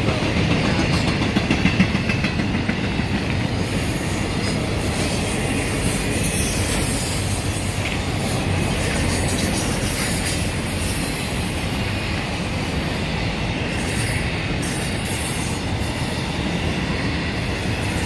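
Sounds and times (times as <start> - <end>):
freight train wheels rumbling on rails: 0.0 - 18.0
high wheel squeal: 4.0 - 12.1, 12.8 - 17.0.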